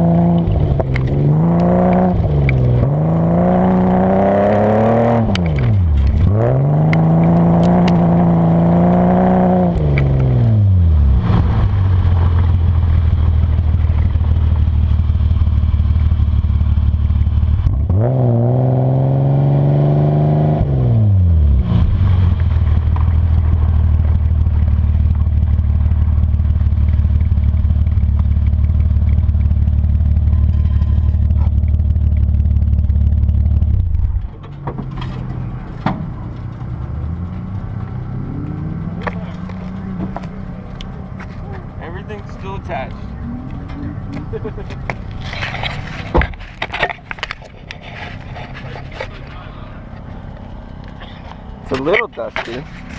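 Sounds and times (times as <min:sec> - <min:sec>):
car engine revving: 0:00.0 - 0:52.9
gravel clattering on car underside: 0:00.2 - 0:03.0, 0:05.3 - 0:08.3, 0:11.6 - 0:16.5, 0:22.0 - 0:52.9.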